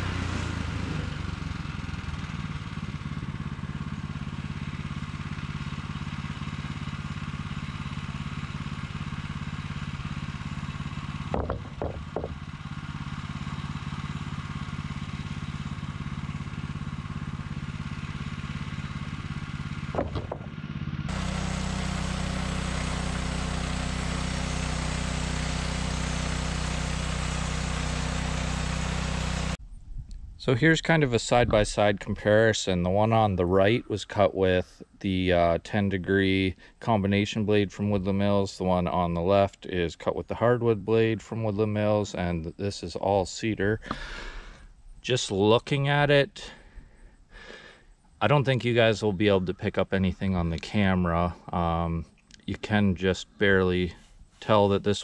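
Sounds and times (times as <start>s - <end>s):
sawmill engine running: 0.0s - 29.6s, 37.8s - 55.0s
sharp knocks: 11.3s - 12.4s, 19.9s - 20.6s.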